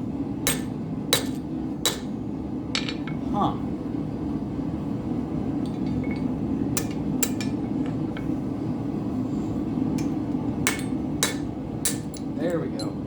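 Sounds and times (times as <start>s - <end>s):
sharp metal taps and clinks: 10.7s - 13.0s.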